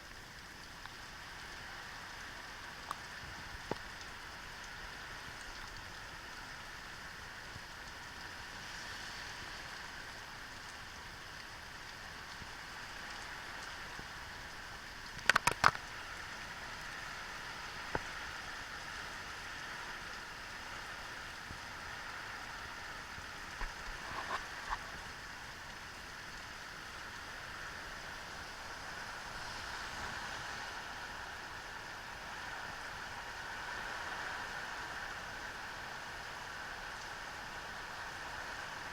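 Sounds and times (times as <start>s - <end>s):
steady rain falling: 0.0s - 38.9s
sharp clicks: 15.2s - 15.8s.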